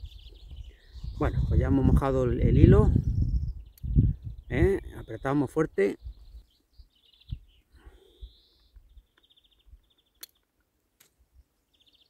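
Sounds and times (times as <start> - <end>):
low wind rumble: 0.0 - 6.4
faint birdsong trills: 0.0 - 12.0
sharp clicks: 10.2 - 11.2.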